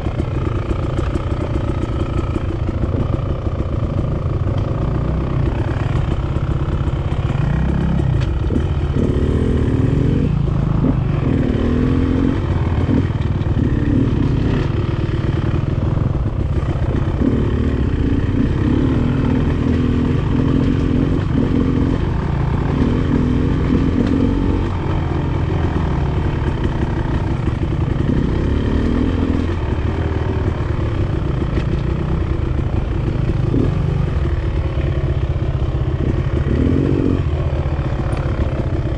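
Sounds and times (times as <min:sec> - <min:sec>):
dirt bike engine revving: 0:07.3 - 0:15.1, 0:16.0 - 0:32.2, 0:36.0 - 0:38.4.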